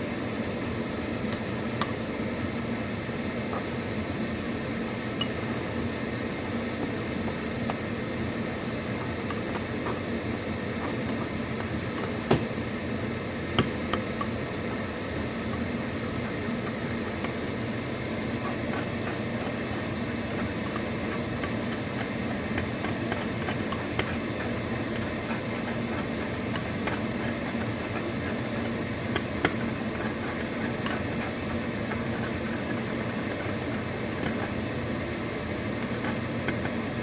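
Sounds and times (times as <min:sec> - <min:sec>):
steady mechanical hum: 0:00.0 - 0:37.0
faint clicks and taps: 0:20.6 - 0:34.6, 0:35.8 - 0:36.8.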